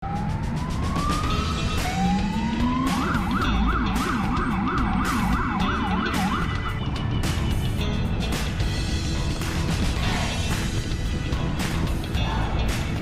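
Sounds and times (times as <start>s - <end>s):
police siren wailing and yelping: 0.0s - 7.0s.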